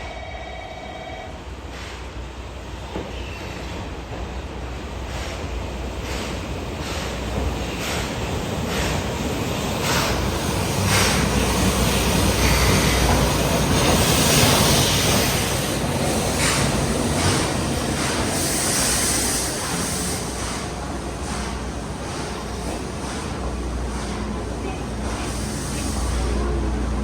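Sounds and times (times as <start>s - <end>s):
steam train rumbling: 1.4s - 27.0s.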